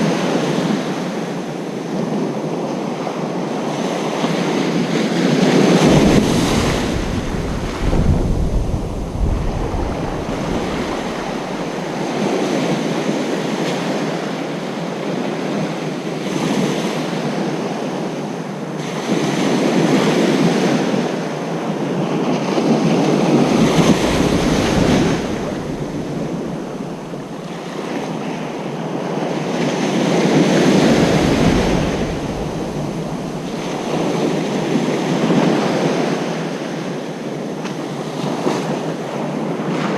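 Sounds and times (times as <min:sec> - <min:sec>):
wind rumbling on microphone: 0:04.5 - 0:14.2, 0:18.9 - 0:39.9
surf breaking on beach: 0:05.1 - 0:13.3, 0:22.4 - 0:36.5.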